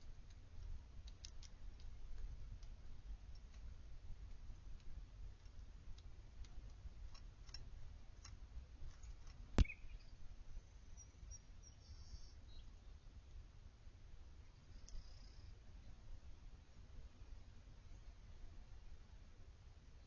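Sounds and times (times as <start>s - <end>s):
faint clicks: 0.0s - 10.1s, 14.6s - 15.6s
low outdoor rumble: 0.0s - 20.0s
bird chirps: 9.6s - 13.0s.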